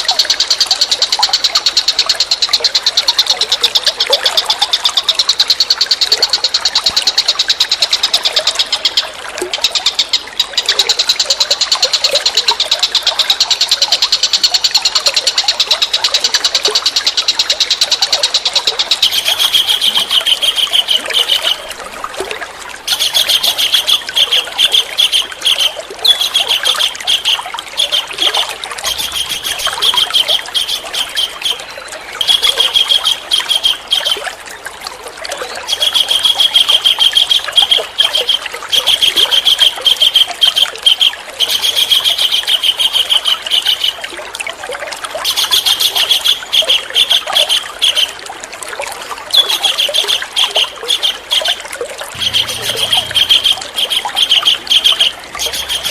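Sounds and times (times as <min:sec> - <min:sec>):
running water trickling: 0:00.0 - 0:55.9
bird trilling: 0:22.9 - 0:34.2, 0:49.4 - 0:55.9.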